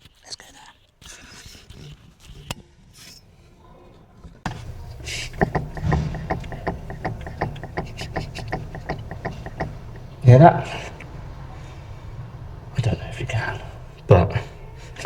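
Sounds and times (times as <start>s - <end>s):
suspension knocks and creaks: 4.2s - 15.0s.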